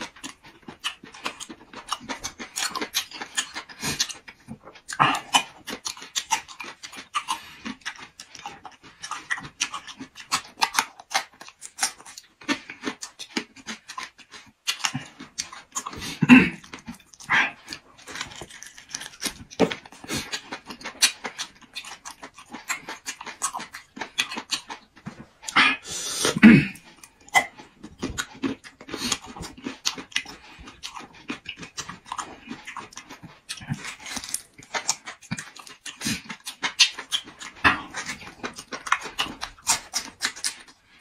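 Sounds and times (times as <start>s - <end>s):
chewing and wet lip-smacking: 0.0s - 41.0s
breathing through the mouth: 25.5s - 26.4s.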